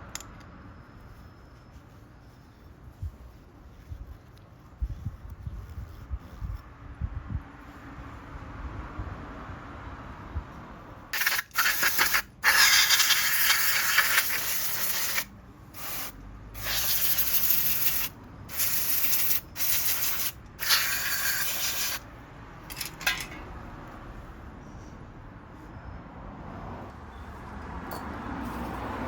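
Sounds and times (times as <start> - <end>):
pressurised spray hissing: 11.2 - 22.0.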